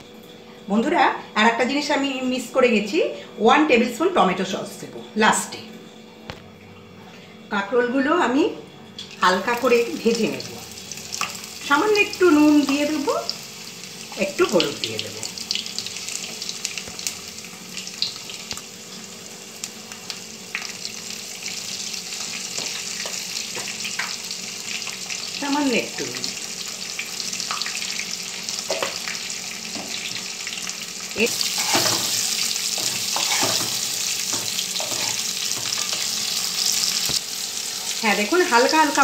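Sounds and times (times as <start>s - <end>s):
vegetable slices sizzling in oil: 9.0s - 39.0s
spatula knocking and scraping pan: 31.6s - 32.2s, 32.8s - 36.0s.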